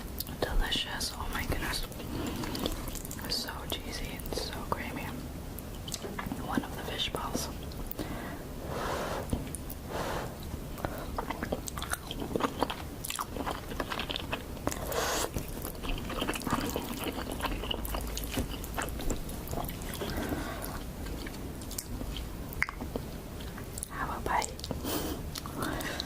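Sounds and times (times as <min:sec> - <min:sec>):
chewing crunchy food: 0:01.6 - 0:03.4, 0:05.6 - 0:06.7, 0:10.4 - 0:26.0.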